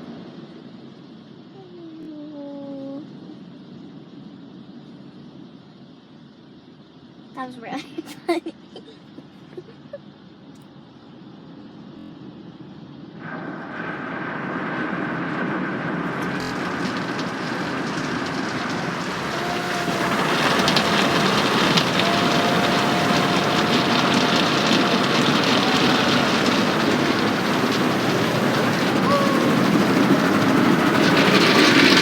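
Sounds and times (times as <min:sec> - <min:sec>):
faint steady whine: 0:00.0 - 0:32.0
car wash equipment rushing: 0:15.3 - 0:32.0.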